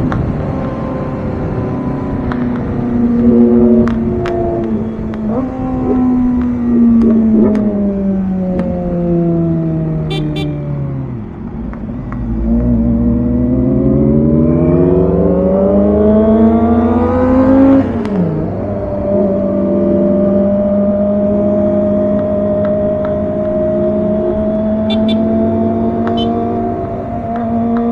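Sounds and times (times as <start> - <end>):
motorcycle engine revving: 9.1 - 11.3, 18.9 - 27.7.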